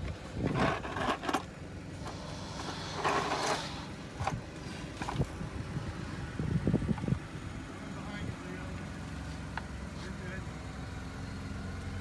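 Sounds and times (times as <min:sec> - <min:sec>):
steady low hum: 0:00.2 - 0:09.4
hand tools rustling and scraping: 0:00.5 - 0:05.3.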